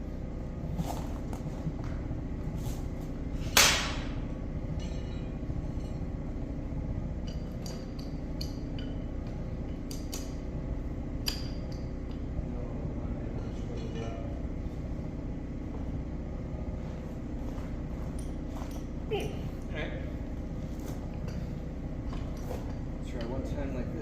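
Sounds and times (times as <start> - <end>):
hammer striking steel: 3.6 - 4.2.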